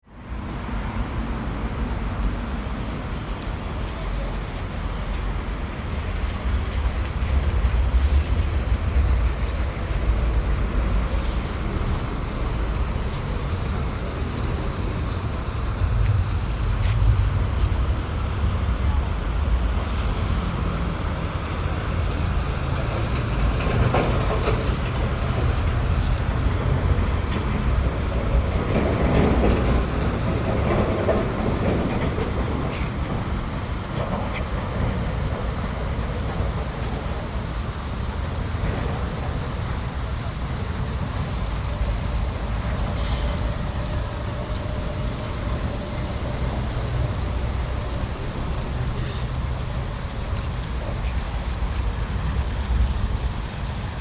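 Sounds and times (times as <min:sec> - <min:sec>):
distant traffic rumble: 0:00.1 - 0:54.0.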